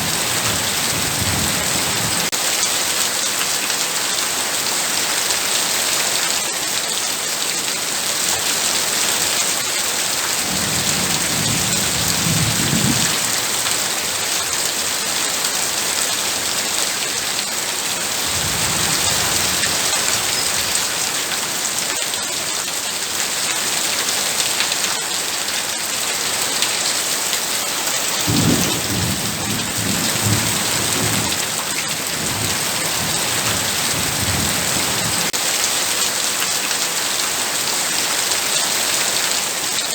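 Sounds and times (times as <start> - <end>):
low thunder rumbling: 0.0 - 2.3, 10.5 - 13.6, 28.3 - 35.3
heavy rain pouring: 0.0 - 39.9.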